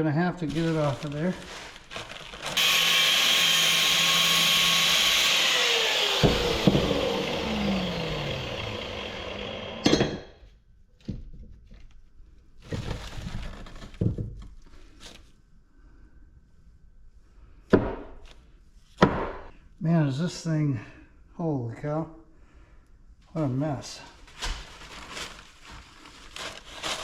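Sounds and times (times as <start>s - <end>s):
power tool whining: 2.4s - 9.9s.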